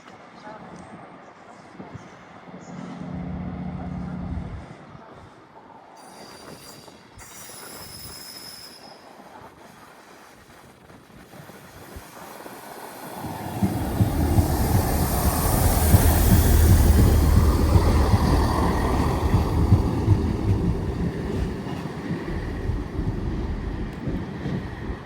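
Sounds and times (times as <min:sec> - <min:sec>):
train rumble and hiss: 0:00.1 - 0:25.0
high whine from rails: 0:02.5 - 0:04.8, 0:12.4 - 0:25.0.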